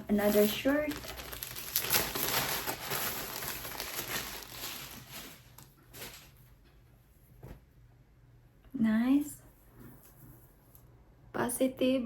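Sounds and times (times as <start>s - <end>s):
packaging crinkling: 0.1s - 6.4s.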